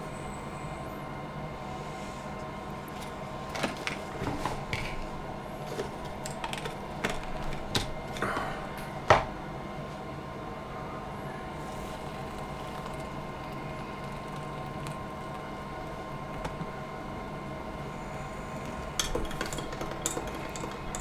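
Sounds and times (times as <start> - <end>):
kitchen items clicking and knocking: 3.5 - 8.5, 18.6 - 21.0.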